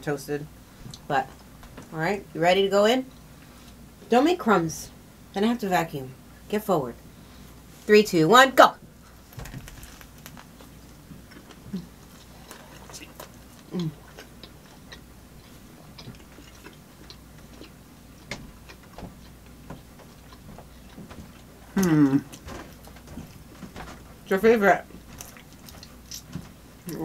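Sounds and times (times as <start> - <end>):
chewing with wet mouth clicks: 11.3 - 22.4, 25.2 - 26.3
person humming mm: 12.9 - 14.1, 21.7 - 22.3.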